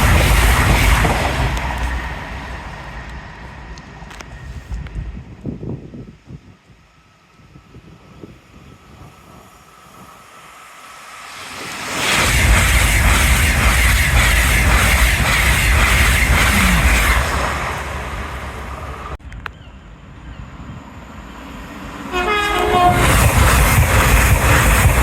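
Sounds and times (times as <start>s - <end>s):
train wheels clattering on rails: 0.0s - 5.6s, 11.2s - 19.2s, 22.3s - 25.0s
train horn short notes: 22.1s - 23.2s.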